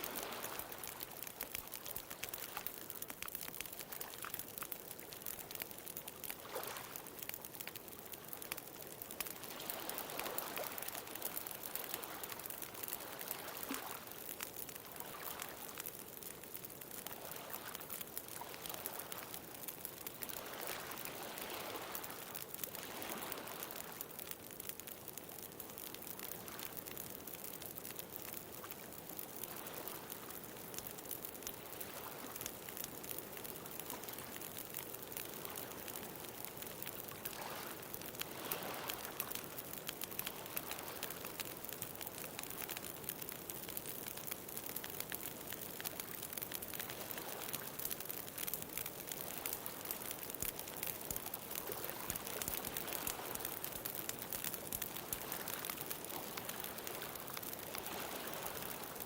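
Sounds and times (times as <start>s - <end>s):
ocean waves: 0.0s - 1.3s, 22.8s - 23.9s, 37.3s - 39.3s, 51.5s - 53.8s, 54.7s - 59.0s
bonfire crackling: 0.0s - 59.0s.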